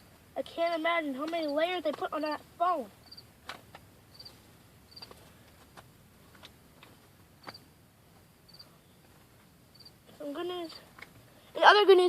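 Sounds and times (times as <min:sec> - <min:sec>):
crickets chirping: 0:03.0 - 0:03.3, 0:04.1 - 0:05.1, 0:08.5 - 0:09.0, 0:09.7 - 0:10.0.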